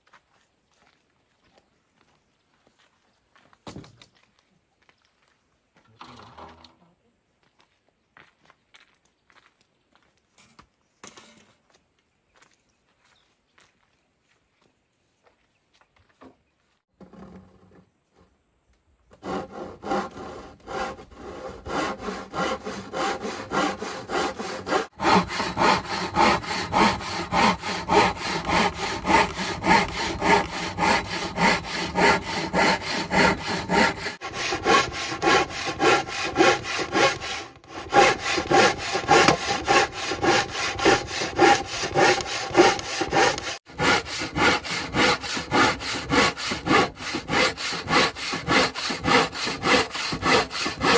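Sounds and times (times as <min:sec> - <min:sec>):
hand saw cutting wood: 0:19.1 - 0:50.9.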